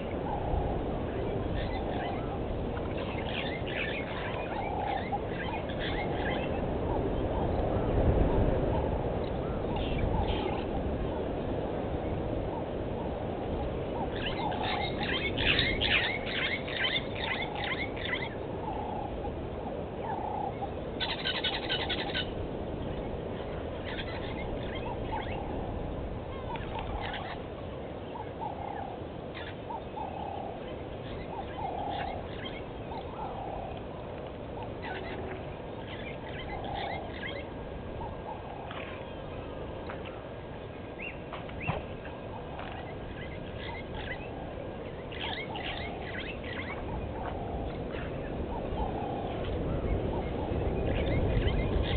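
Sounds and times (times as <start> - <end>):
birds chattering chirps: 0.0 - 51.9
steady low hiss: 0.0 - 51.9.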